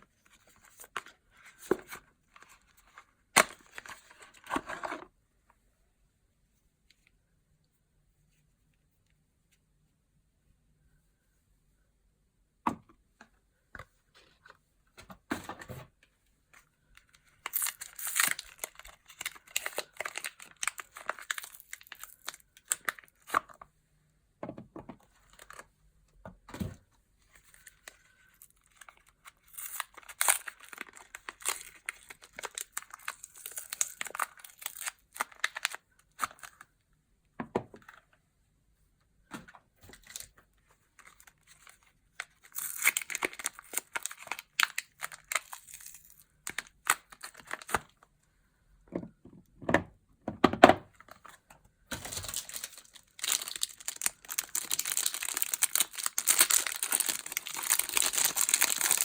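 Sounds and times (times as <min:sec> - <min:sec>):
wrappers crinkling and tearing: 0:17.4 - 0:23.3, 0:27.5 - 0:35.8, 0:41.0 - 0:47.8, 0:51.9 - 0:59.0.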